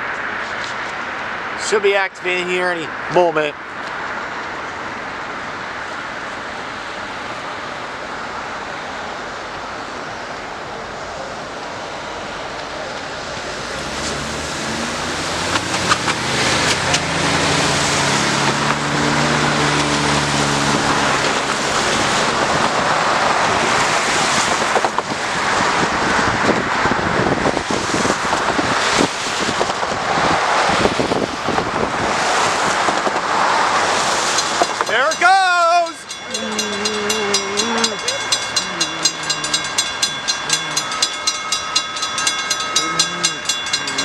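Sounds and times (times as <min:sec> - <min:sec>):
traffic rush: 0:00.0 - 0:44.0
vehicle passing with engine humming: 0:03.9 - 0:35.2, 0:36.0 - 0:44.0
wind noise on microphone: 0:15.2 - 0:34.4.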